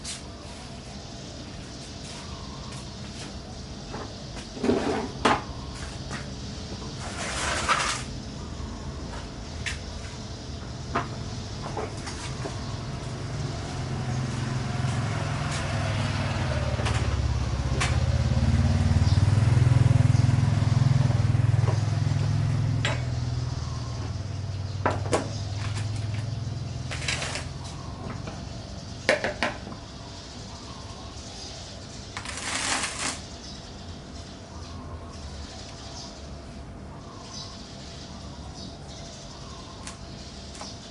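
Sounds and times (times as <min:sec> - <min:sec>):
vehicle engine passing: 0:12.6 - 0:28.7.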